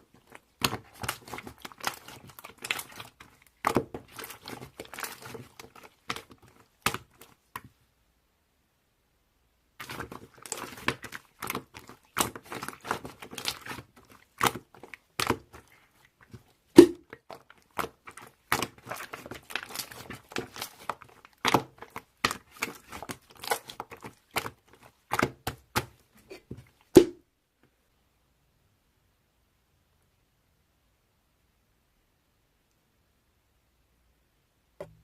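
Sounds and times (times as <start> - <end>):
crinkling and crackling: 0.0 - 7.7, 9.8 - 27.0.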